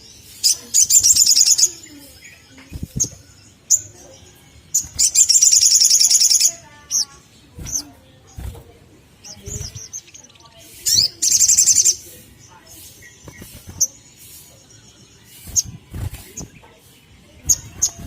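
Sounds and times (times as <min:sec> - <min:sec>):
bird chirping: 0:00.0 - 0:18.0
bird rattling trill: 0:04.7 - 0:06.5, 0:12.8 - 0:14.5, 0:15.3 - 0:16.6, 0:17.4 - 0:18.0.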